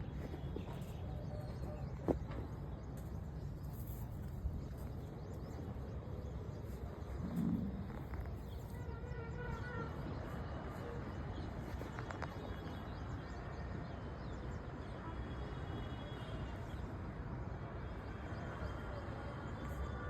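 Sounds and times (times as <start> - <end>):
steady low rumble: 5.9 - 8.6.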